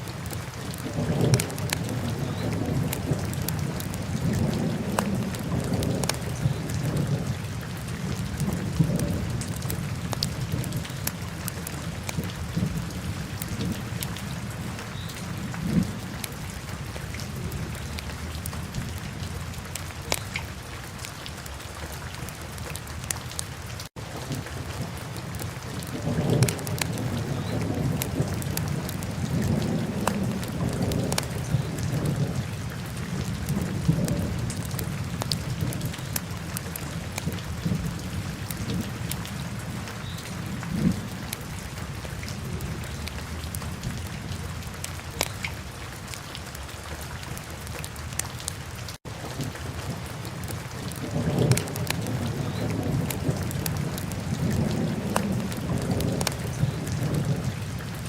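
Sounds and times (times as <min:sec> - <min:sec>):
fire crackling and popping: 0:08.4 - 0:13.8, 0:25.1 - 0:32.2, 0:50.4 - 0:56.8.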